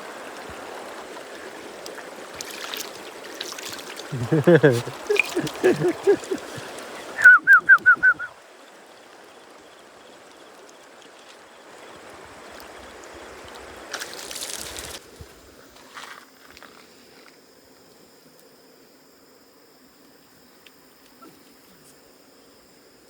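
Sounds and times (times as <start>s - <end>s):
running water: 0.0s - 15.3s.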